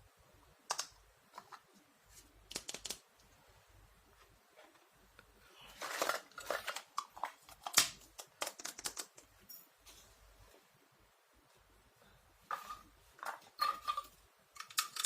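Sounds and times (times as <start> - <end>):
plastic toy pieces clicking: 5.8 - 9.2, 14.6 - 15.0.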